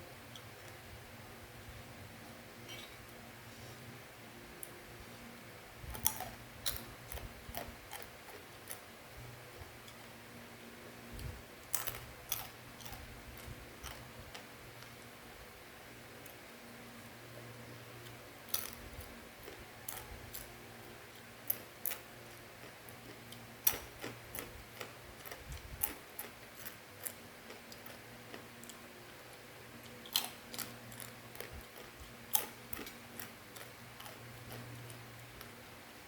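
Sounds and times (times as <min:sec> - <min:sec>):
steady low hum: 0:00.0 - 0:36.0
person chewing crunchy snack: 0:05.9 - 0:08.8, 0:11.7 - 0:14.5, 0:21.5 - 0:28.8, 0:29.8 - 0:35.0.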